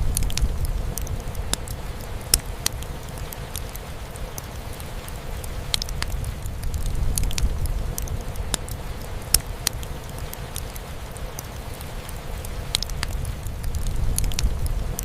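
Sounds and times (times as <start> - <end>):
rain drumming on a roof: 0.0 - 15.0
wood fire crackling and popping: 0.0 - 15.0.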